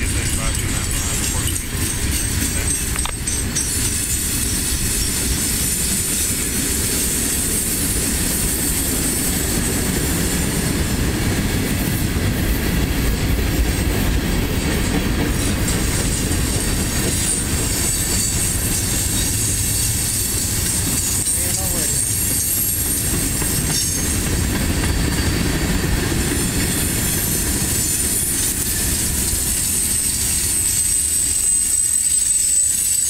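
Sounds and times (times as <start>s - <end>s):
freight train cars rolling past: 0.0s - 33.0s.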